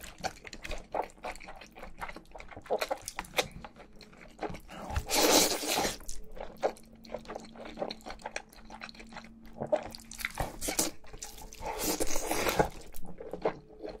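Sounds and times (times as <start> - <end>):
wet chewing and smacking: 0.0 - 14.0.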